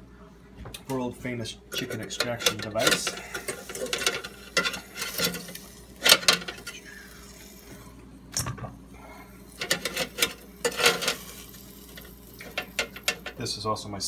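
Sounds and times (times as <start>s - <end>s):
utensil clattering on metal basket: 1.7s - 6.8s, 9.5s - 13.4s.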